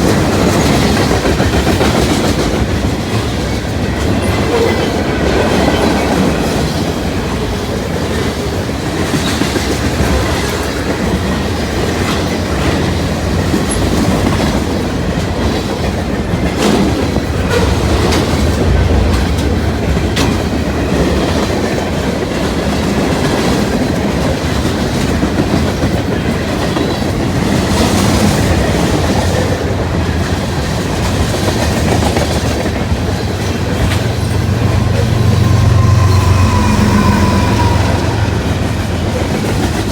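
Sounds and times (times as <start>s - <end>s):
wheels clacking over rail joints: 0.0s - 39.9s
freight cars rumbling past: 16.6s - 22.1s, 31.8s - 39.9s.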